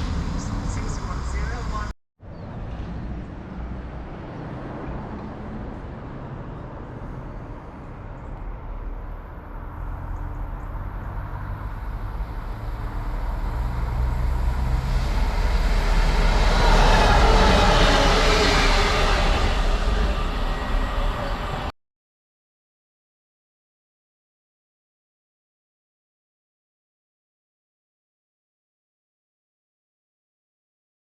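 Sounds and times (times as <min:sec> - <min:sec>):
diesel train engine rumble: 0:00.0 - 0:21.7
train wheels on rails: 0:10.0 - 0:21.7.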